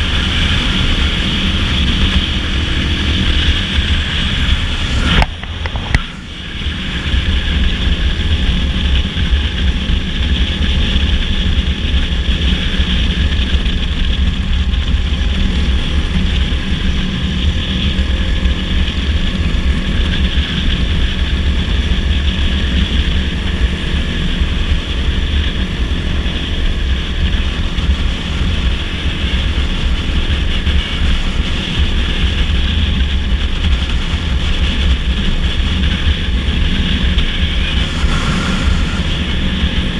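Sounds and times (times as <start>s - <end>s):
dirt bike engine running: 0.0s - 39.9s
wind rumble on microphone: 0.0s - 39.9s.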